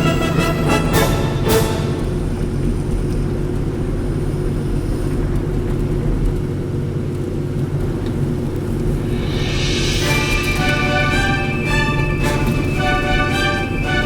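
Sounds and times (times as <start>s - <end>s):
in-car road noise: 1.4s - 9.9s.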